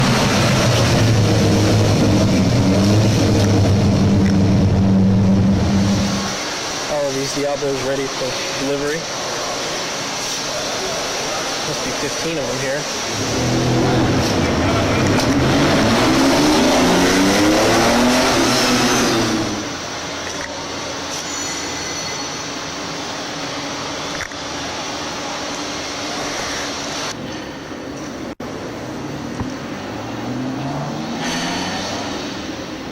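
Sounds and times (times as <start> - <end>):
car engine running steadily: 0.0 - 6.8
car engine accelerating: 0.0 - 7.2, 11.8 - 20.0, 29.8 - 32.9.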